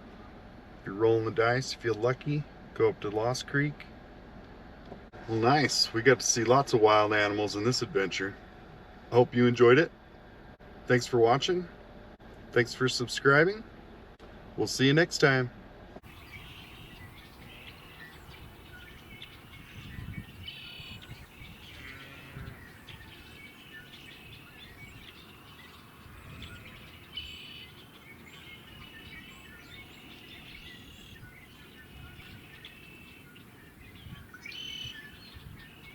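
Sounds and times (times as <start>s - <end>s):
birds chirping: 16.0s - 35.9s.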